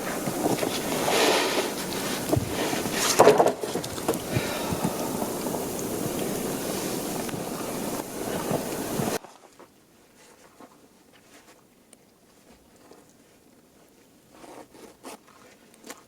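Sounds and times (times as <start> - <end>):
footsteps crunching in snow: 0.0 - 9.2
small ticks: 0.0 - 9.2.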